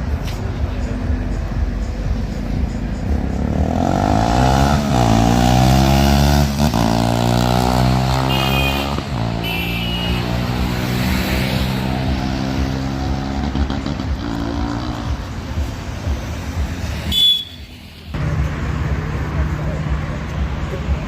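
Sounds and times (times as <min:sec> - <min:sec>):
motorcycle engine passing by: 0:03.5 - 0:09.4.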